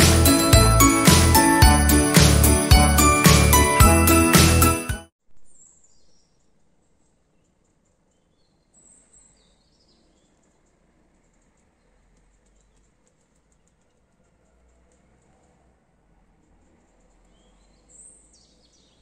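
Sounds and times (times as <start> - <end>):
festive holiday tune with sleigh bells: 0.0 - 5.1
faint high bird chirps: 5.4 - 14.8, 16.4 - 19.0.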